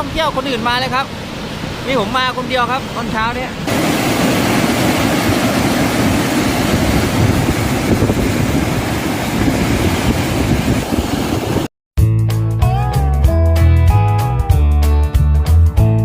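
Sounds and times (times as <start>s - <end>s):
waterfall roaring: 0.0s - 11.7s.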